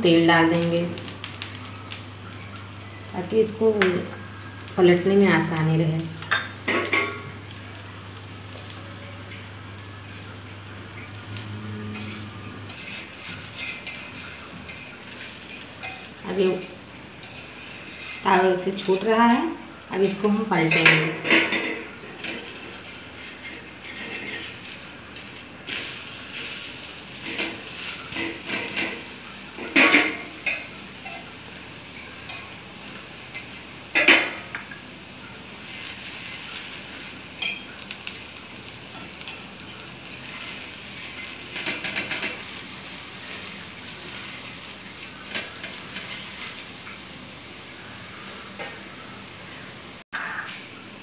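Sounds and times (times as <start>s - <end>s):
batter sizzling on griddle: 0.0s - 51.0s
metal spoon scraping griddle: 11.2s - 16.6s, 17.2s - 18.4s, 20.6s - 31.3s, 39.0s - 46.7s.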